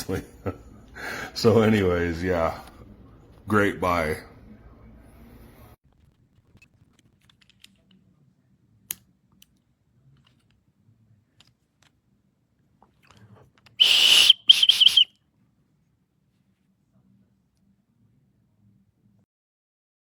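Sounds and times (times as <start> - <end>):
shrill emergency whistle blasts: 13.8 - 15.1.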